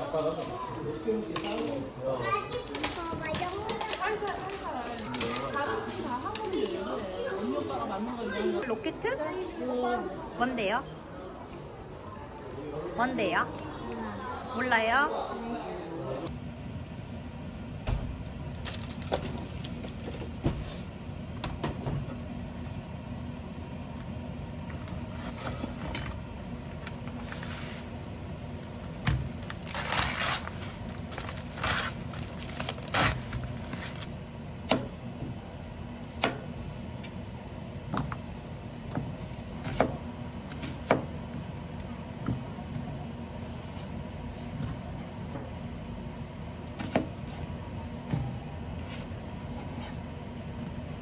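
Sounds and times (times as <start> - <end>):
steady low hum: 16.0 - 51.0.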